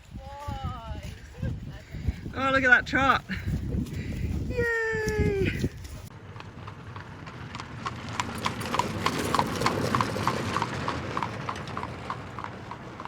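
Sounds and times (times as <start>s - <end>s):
horse hooves clip-clopping: 3.2s - 13.0s.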